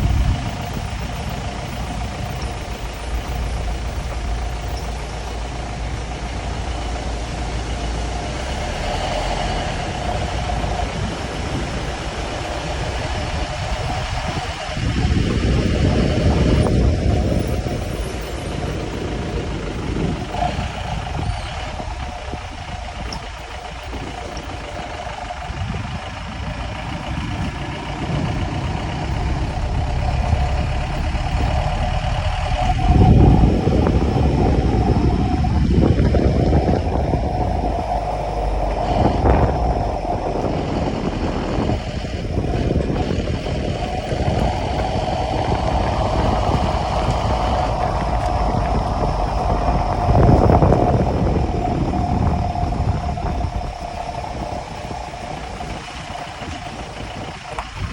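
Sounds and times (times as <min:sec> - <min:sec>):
vehicle engine and road rumble: 0:00.0 - 0:57.9.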